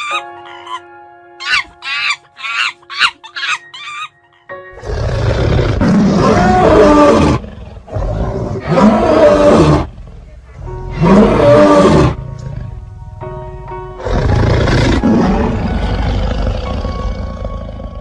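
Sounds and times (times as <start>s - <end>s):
background music: 0.0s - 18.0s
loud animal roar: 4.8s - 12.2s, 14.0s - 18.0s.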